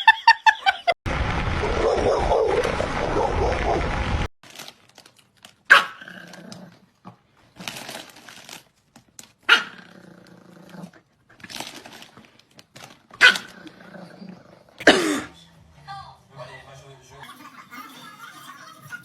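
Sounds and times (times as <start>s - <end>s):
loud noise burst: 1.1s - 4.3s
dog barking: 5.7s - 6.0s, 9.5s - 9.8s.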